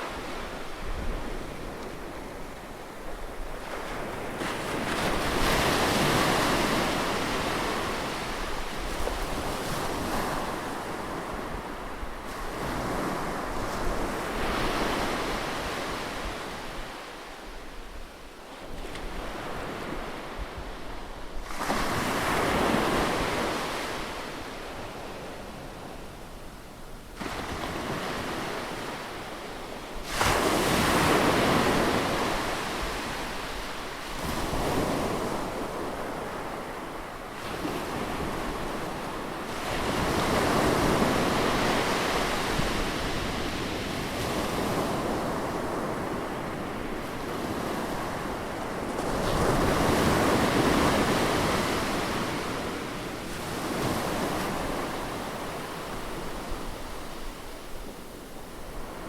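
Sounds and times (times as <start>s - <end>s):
wind on microphone: 0.0s - 26.3s
ocean waves breaking on beach: 0.0s - 59.0s.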